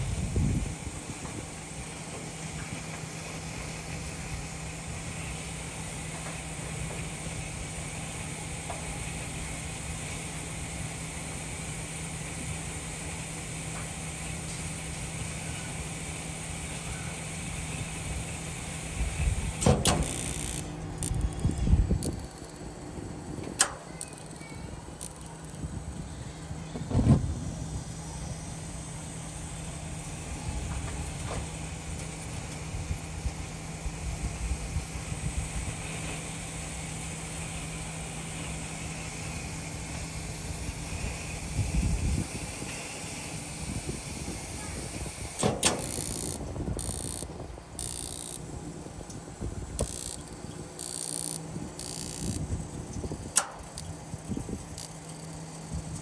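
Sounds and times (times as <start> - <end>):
gas burner rumble: 0.0 - 56.0
steady hum: 0.0 - 56.0
sharp clicks: 53.2 - 54.0.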